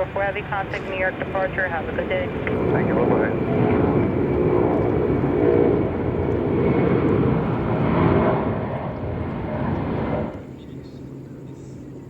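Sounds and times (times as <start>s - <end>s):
jet engines rumbling at takeoff: 0.0s - 12.0s.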